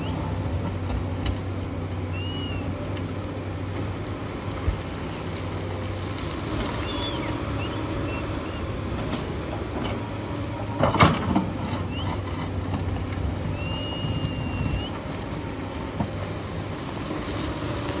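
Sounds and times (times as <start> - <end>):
excavator diesel engine running: 0.0 - 18.0
high squeals: 2.1 - 2.8, 6.7 - 8.8, 13.5 - 15.0.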